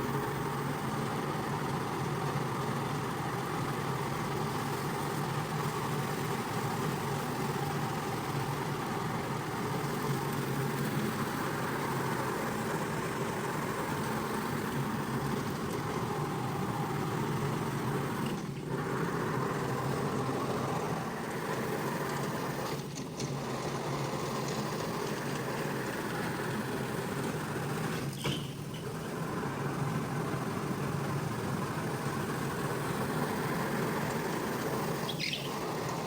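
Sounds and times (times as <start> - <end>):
carpet-cleaning machine running: 0.0 - 36.0.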